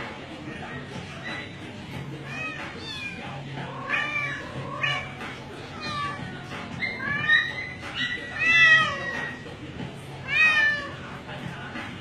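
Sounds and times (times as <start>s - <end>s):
kitten mewing: 2.1s - 9.4s.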